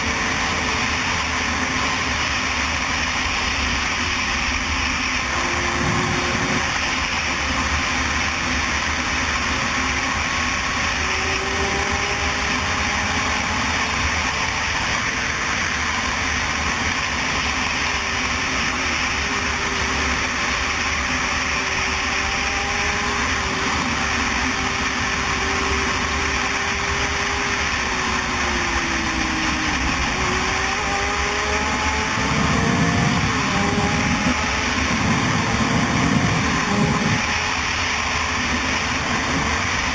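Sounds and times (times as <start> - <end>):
loud steady rushing noise: 0.0 - 39.9
motorcycle engine under load: 0.0 - 39.9.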